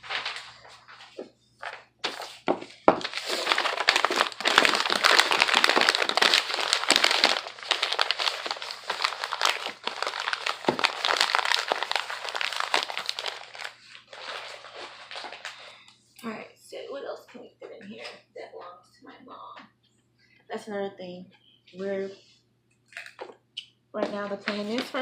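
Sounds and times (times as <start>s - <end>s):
paper crumpling and crinkling: 0.0s - 15.8s, 24.1s - 25.0s.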